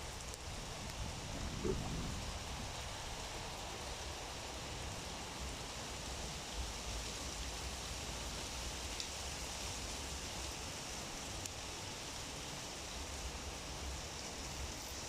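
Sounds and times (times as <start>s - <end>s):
low wind rumble: 0.0s - 5.5s.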